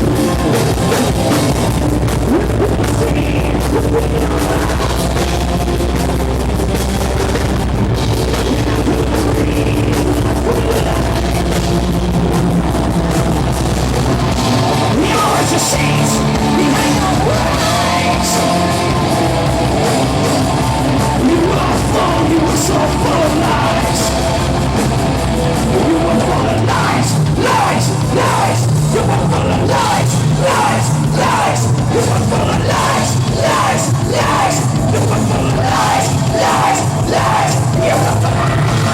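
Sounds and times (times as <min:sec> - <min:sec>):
rock band playing: 0:00.0 - 0:38.9
person singing: 0:14.8 - 0:24.8, 0:25.4 - 0:38.9.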